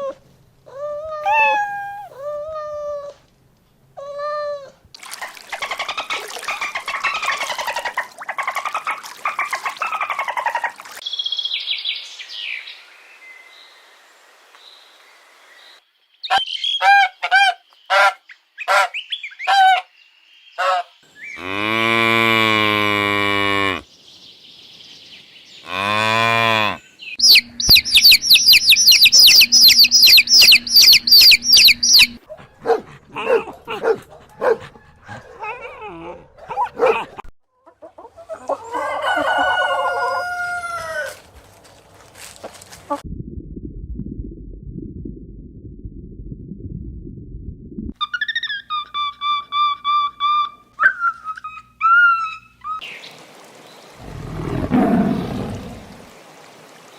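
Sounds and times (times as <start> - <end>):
animal whistled calls: 1.2 - 2.2, 27.2 - 32.2
bird chirping: 1.3 - 2.2, 26.8 - 37.1
cow mooing: 21.4 - 23.8, 25.7 - 26.8, 54.0 - 56.0
low rumble: 43.0 - 48.0.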